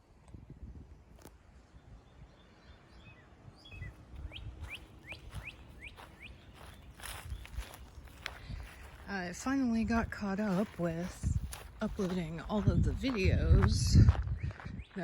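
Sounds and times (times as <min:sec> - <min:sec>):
songbird chirping: 0:01.3 - 0:15.0
low rumble on microphone: 0:11.1 - 0:15.0.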